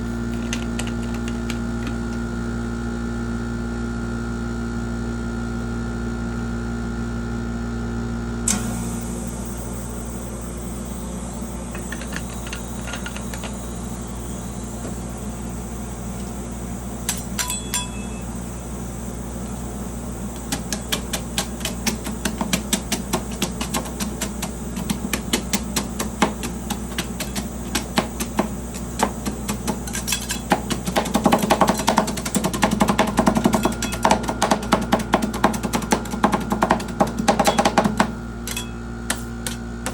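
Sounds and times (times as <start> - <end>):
steady low hum of pan: 8.4 - 39.9
metal spatulas chopping on cold plate: 20.5 - 36.0, 36.8 - 39.6.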